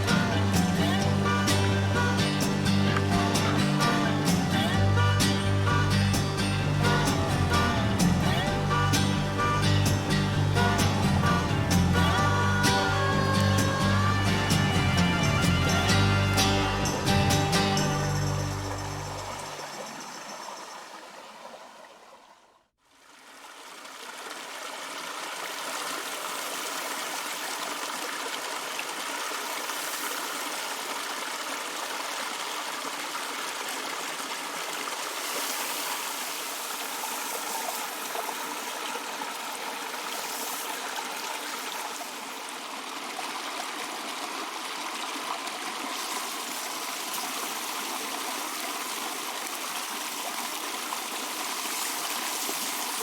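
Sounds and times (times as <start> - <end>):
music: 0.0 - 19.4
creek water flowing: 0.0 - 53.0.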